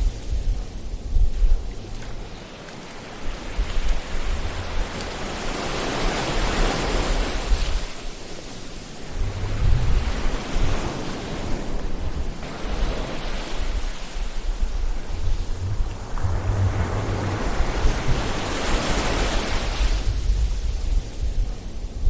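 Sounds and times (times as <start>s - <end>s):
ocean waves breaking: 0.0s - 22.0s
low surf rumble: 8.8s - 22.0s.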